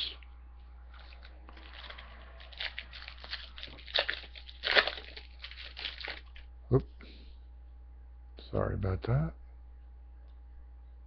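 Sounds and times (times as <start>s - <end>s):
card wrapper crinkling: 1.0s - 6.5s.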